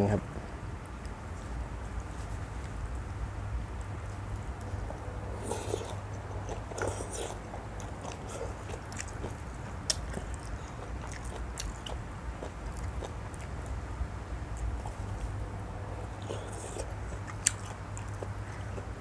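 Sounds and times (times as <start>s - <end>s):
steady low hum: 0.0s - 19.0s
person chewing noodles: 4.3s - 13.8s, 14.4s - 19.0s.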